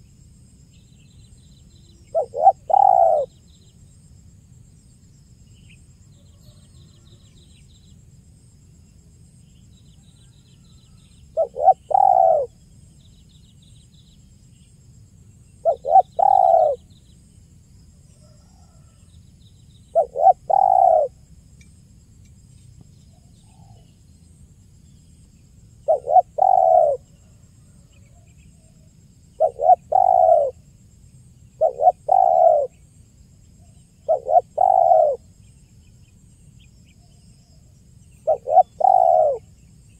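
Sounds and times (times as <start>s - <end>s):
small birds chirping: 0.7s - 4.7s, 9.4s - 17.4s, 18.1s - 30.6s, 31.2s - 39.9s
dove cooing: 2.0s - 3.4s, 11.3s - 12.6s, 15.6s - 16.9s, 19.9s - 21.2s, 25.8s - 27.4s, 29.4s - 30.6s, 31.6s - 32.7s, 34.0s - 35.3s, 38.2s - 39.5s.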